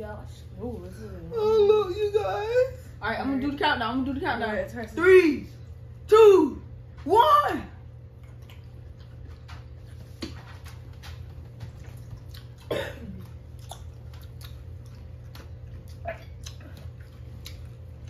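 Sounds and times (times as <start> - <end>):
low steady hum: 0.0 - 18.0
chewing crunchy pickles: 8.1 - 18.0.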